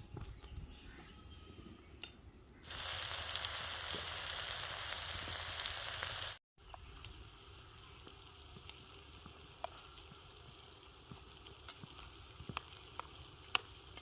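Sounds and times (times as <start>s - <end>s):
food frying in hot oil: 2.6s - 14.0s.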